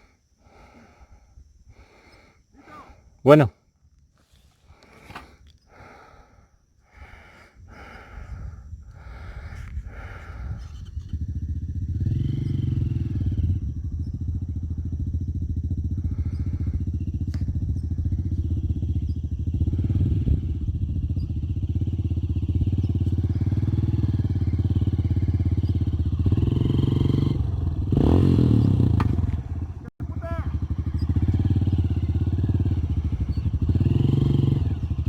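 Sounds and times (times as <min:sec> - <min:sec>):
motorcycle engine running: 0:10.2 - 0:35.0.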